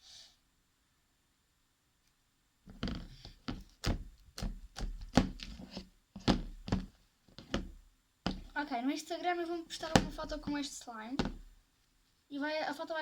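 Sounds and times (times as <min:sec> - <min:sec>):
low thumps: 0:06.2 - 0:08.6.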